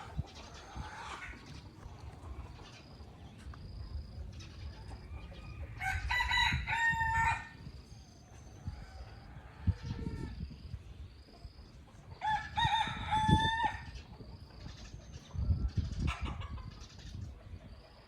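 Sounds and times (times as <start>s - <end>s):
rooster crowing: 5.4s - 7.6s, 12.2s - 14.0s.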